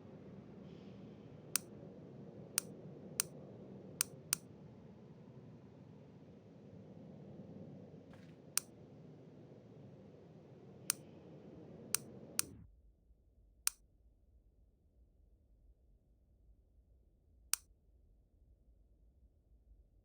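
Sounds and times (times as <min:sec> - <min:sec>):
sharp isolated clicks: 0:01.6 - 0:01.8, 0:02.5 - 0:03.4, 0:04.0 - 0:04.5, 0:10.8 - 0:11.2, 0:11.9 - 0:12.6.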